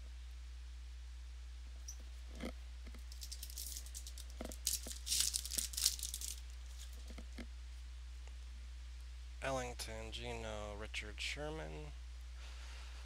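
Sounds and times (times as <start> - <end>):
wrapper crinkling and tearing: 3.0 - 7.1.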